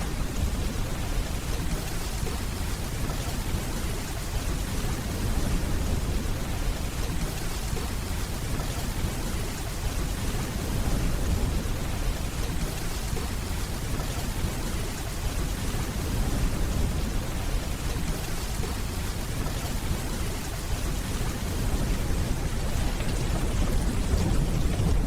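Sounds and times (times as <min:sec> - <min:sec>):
distant thunder rumbling: 0:00.0 - 0:25.0
steady rainfall: 0:00.0 - 0:25.0.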